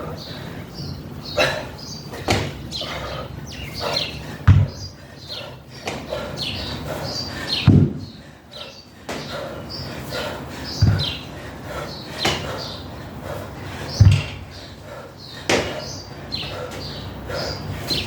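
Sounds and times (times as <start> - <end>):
birds chirping: 0.0 - 18.0
dumbbell landing thuds: 2.2 - 2.6, 4.4 - 4.9, 7.6 - 8.2, 10.8 - 11.2, 12.2 - 12.5, 14.0 - 14.6, 15.5 - 15.8.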